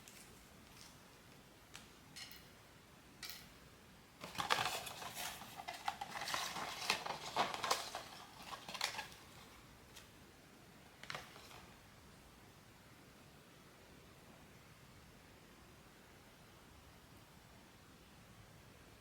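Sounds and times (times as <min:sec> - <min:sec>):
packaging rustling and clicking: 0:04.2 - 0:10.1, 0:11.0 - 0:11.7.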